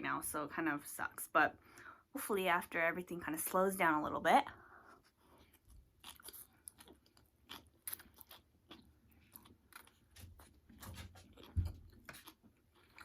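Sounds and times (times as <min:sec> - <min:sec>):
chewing and biting food: 0:04.8 - 0:13.0.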